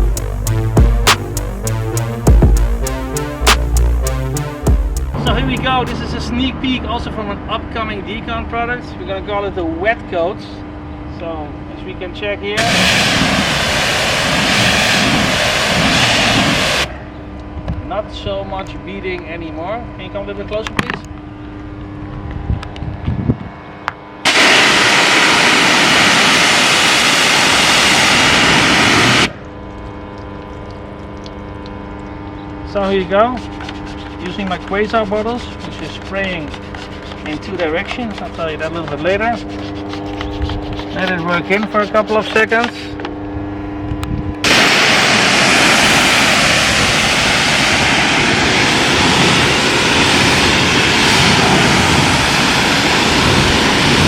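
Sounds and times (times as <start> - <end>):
pressure washer spraying water: 39.4 - 42.5.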